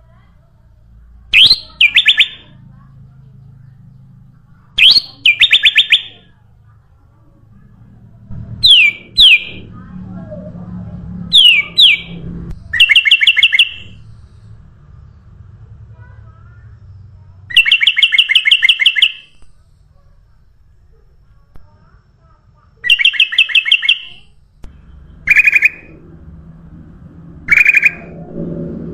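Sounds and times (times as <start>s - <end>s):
bird singing whistled phrases: 1.3s - 2.4s, 4.8s - 6.2s, 11.3s - 12.2s, 27.5s - 28.2s.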